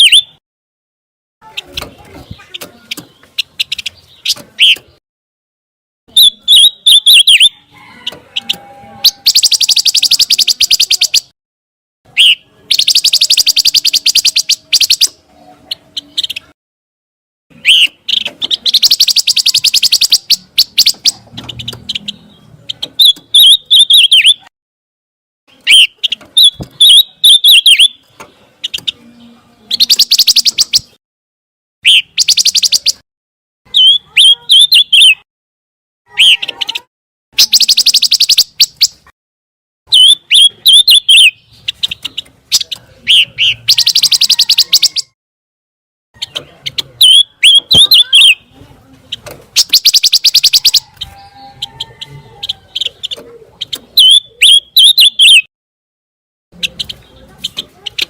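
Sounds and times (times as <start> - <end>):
songbird chirping and trilling: 0.0 - 0.4, 1.4 - 5.0, 6.1 - 11.4, 12.1 - 16.6, 17.5 - 24.5, 25.5 - 31.0, 31.8 - 33.0, 33.7 - 35.3, 36.1 - 39.1, 39.9 - 45.2, 46.2 - 55.5, 56.6 - 58.0.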